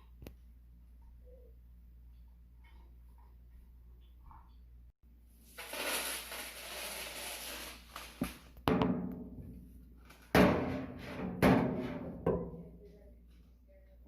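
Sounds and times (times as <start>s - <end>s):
hollow thumps on sheet metal: 8.6s - 9.6s, 10.2s - 12.7s.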